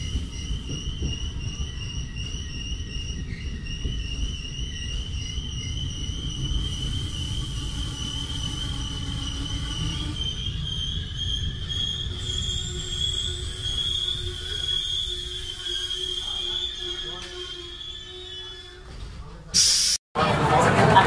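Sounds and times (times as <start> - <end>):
train rumble: 0.0 - 19.5
high-pitched whine: 3.8 - 19.0.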